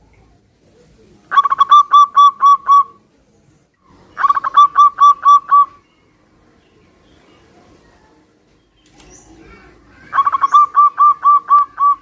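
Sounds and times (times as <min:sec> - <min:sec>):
dove cooing: 0:01.3 - 0:03.0, 0:04.2 - 0:05.8, 0:09.4 - 0:12.0.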